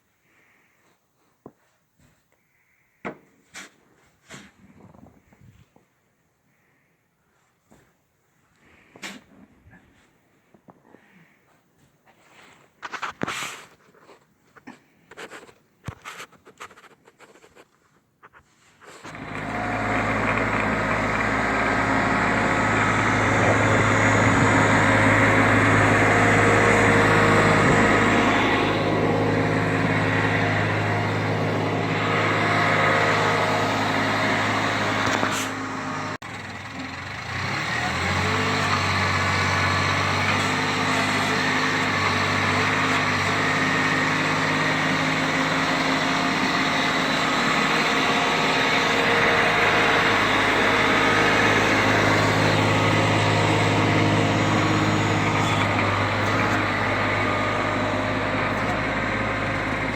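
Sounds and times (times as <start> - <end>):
snow-clearing machine engine: 19.0 - 59.9.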